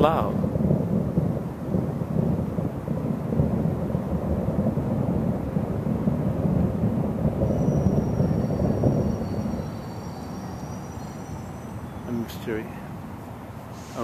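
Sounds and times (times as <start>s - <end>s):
deep rumbling in the sky: 0.0s - 10.1s.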